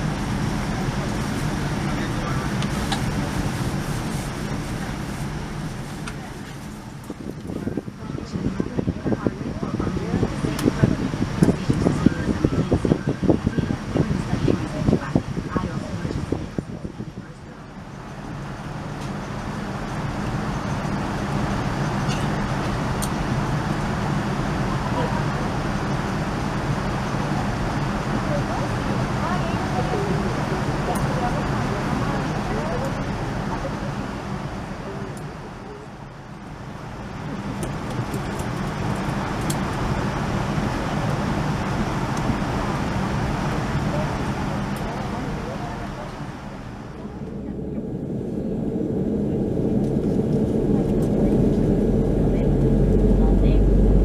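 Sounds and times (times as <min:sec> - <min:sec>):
jet engine rushing inside cabin: 0:00.0 - 0:54.0
rush of air: 0:46.2 - 0:54.0.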